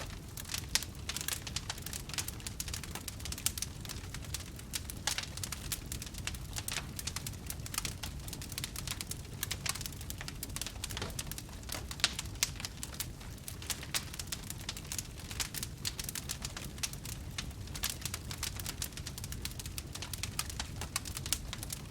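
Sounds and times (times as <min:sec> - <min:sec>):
wood fire crackling: 0:00.0 - 0:21.9.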